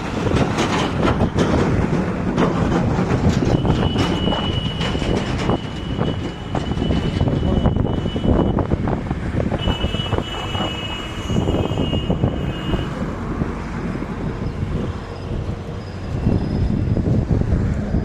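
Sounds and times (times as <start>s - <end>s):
clatter and knocks: 0.0s - 7.6s
engine rumble: 0.0s - 18.0s.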